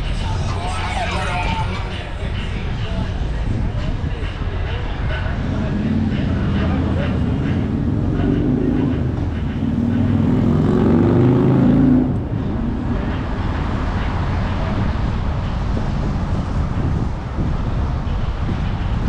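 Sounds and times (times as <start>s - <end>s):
vehicle engine hum: 0.0s - 19.0s
wind and road noise: 0.0s - 19.0s.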